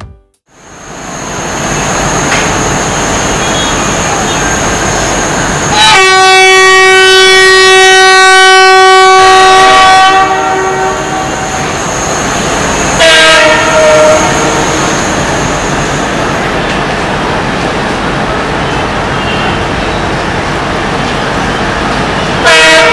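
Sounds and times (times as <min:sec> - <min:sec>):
train wheels rumbling on rails: 0:00.8 - 0:22.9
locomotive horn blasts: 0:05.6 - 0:12.0, 0:12.9 - 0:15.2, 0:22.4 - 0:22.9.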